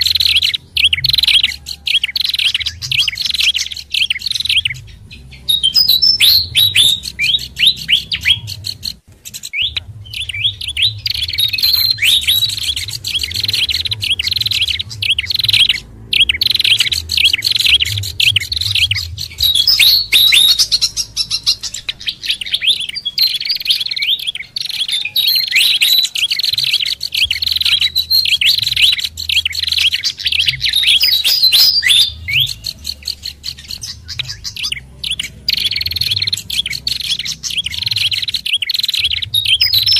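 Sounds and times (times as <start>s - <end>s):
low rumble: 0.0s - 23.4s
birds chirping: 0.0s - 39.9s.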